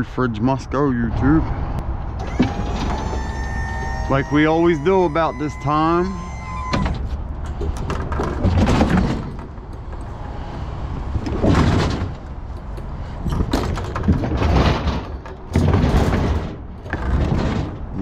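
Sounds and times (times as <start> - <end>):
heavy metal objects thumping: 6.1 - 10.2, 11.3 - 18.0.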